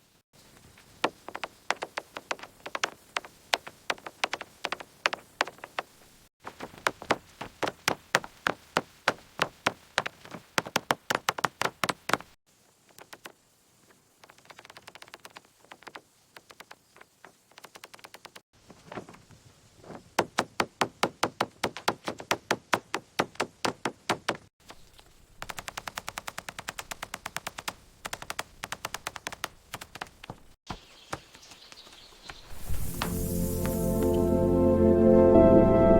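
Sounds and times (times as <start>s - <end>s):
rapid sharp knocks on wood: 1.0s - 6.0s, 6.6s - 12.4s, 20.2s - 24.5s, 25.4s - 31.6s.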